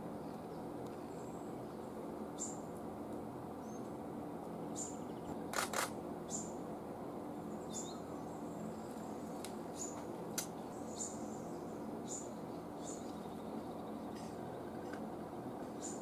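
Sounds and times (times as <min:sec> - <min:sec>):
steady background hum: 0:00.0 - 0:16.0
small bird chirping: 0:07.6 - 0:10.0.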